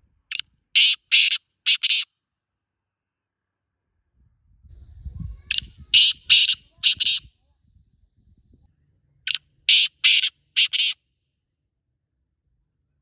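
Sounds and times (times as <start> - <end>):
bird harsh grating calls: 0.8 - 2.0, 5.0 - 7.3, 9.7 - 11.0
high buzzing tone: 4.7 - 8.6.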